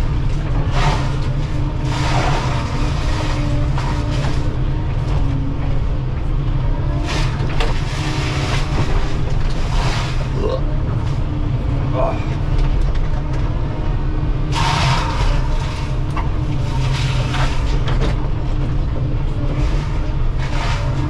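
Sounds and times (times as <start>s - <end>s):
diesel engine running: 0.0s - 21.0s
wood being shredded: 0.2s - 11.3s, 14.4s - 18.3s, 19.2s - 21.0s.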